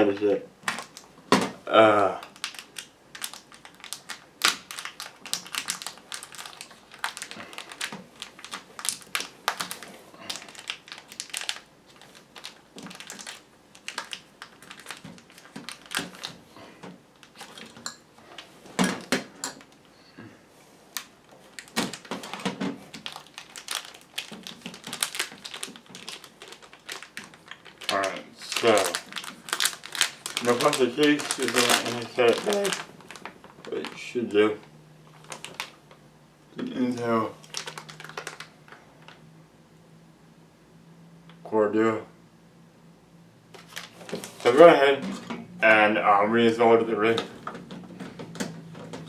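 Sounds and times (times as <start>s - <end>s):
packaging being handled: 2.3s - 19.8s, 21.0s - 34.1s, 35.1s - 36.0s, 36.8s - 39.2s, 43.6s - 45.2s.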